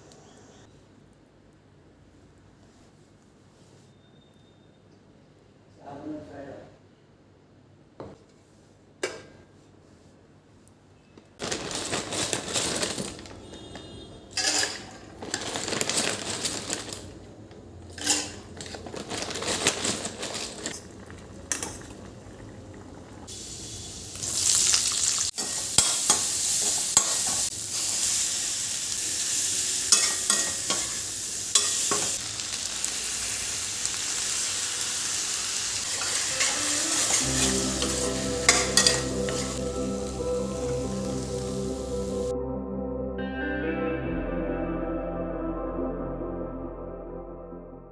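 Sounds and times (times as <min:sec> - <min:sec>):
food sizzling in a pan: 0:21.2 - 0:42.3.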